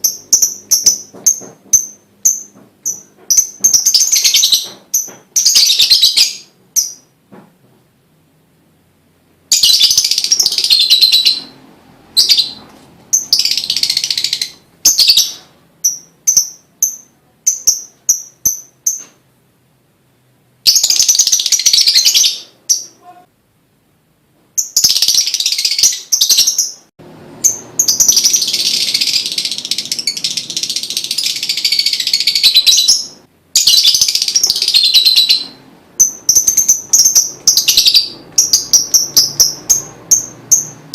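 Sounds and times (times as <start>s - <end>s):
lovebird chattering song: 0.0s - 7.1s, 9.5s - 19.1s, 20.7s - 23.2s, 24.6s - 40.9s.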